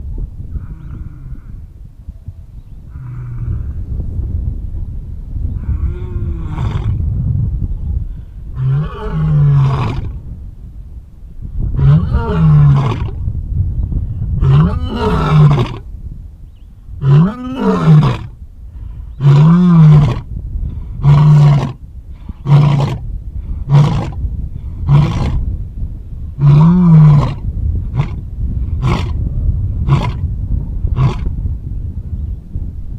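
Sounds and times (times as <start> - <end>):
low steady rumble: 0.0 - 32.9
lion roaring: 14.4 - 15.8, 17.0 - 18.3, 21.0 - 21.8, 26.4 - 27.4.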